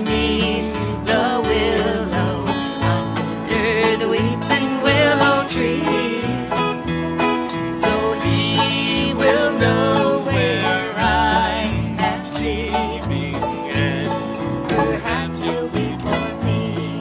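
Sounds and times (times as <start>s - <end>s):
bluegrass string picking: 0.0s - 17.0s.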